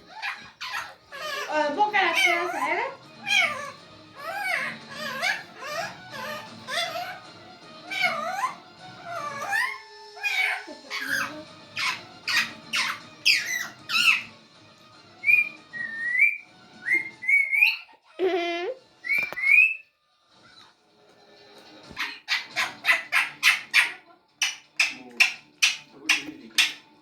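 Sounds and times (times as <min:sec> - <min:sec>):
parrot whistling: 0:00.0 - 0:14.4, 0:15.1 - 0:18.0, 0:19.0 - 0:19.9
parrot calling rapidly: 0:00.0 - 0:14.5, 0:15.1 - 0:18.2, 0:18.9 - 0:19.9, 0:21.9 - 0:26.9.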